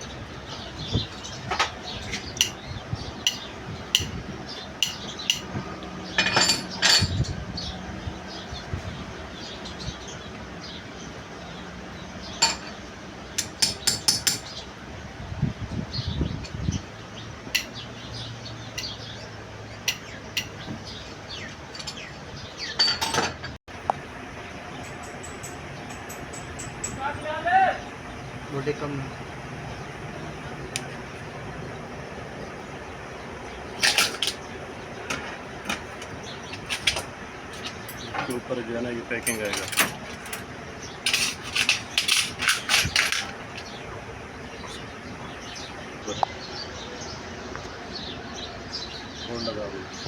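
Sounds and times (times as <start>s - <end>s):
small birds chirping: 0.0s - 23.1s, 23.7s - 50.0s
metallic clicks and clinks: 35.7s - 38.5s, 39.2s - 43.7s
loud ringing metal clanks: 39.2s - 43.8s.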